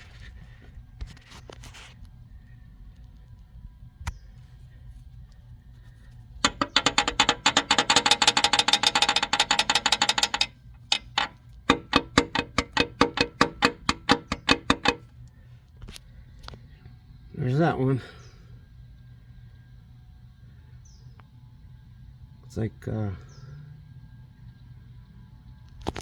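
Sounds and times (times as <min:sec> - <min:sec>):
ratchet wrench clicking: 0:06.4 - 0:15.0.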